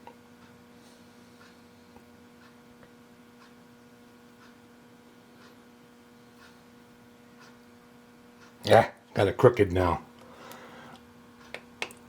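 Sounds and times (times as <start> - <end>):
faint electrical hum: 0.0 - 12.0
soft ticks: 1.4 - 3.6, 4.4 - 4.6, 5.4 - 5.6, 6.4 - 6.6, 7.4 - 7.6, 8.4 - 8.6, 11.4 - 12.0.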